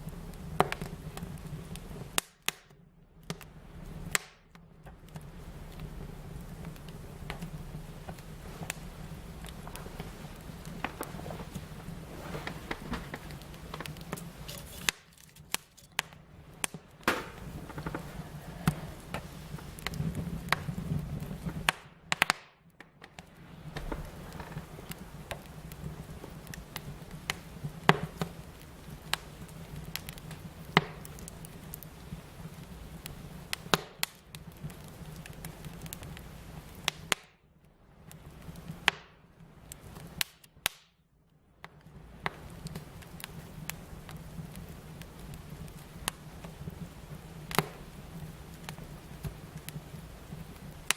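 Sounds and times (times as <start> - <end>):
fire crackling and popping: 0.0 - 50.9
low steady rush: 5.0 - 14.9, 16.0 - 22.1.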